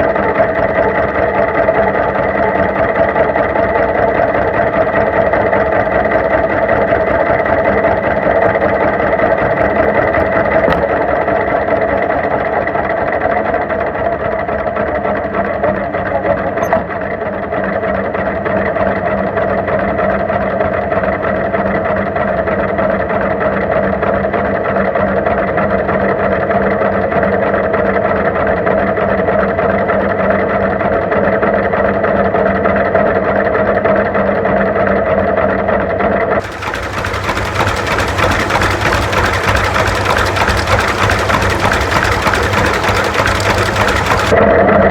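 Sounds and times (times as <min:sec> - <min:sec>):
tractor engine running: 0:36.4 - 0:44.4.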